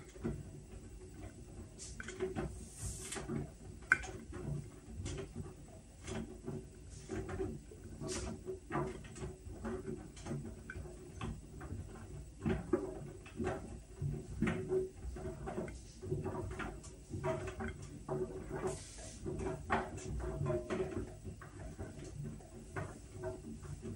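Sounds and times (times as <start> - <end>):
washing machine humming: 0.0 - 23.9.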